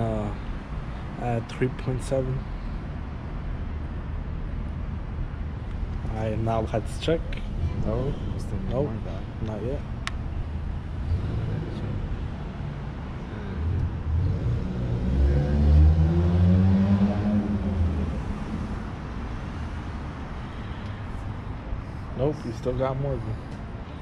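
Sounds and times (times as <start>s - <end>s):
low rumble of traffic: 0.0s - 24.0s
vehicle engine driving past: 10.6s - 21.5s.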